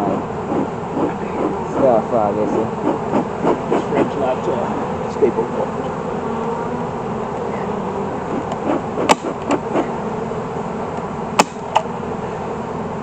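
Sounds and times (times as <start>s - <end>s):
wooden hive frames knocking: 0.0s - 5.1s, 7.4s - 10.0s, 11.0s - 11.9s
honeybees buzzing: 0.0s - 13.0s.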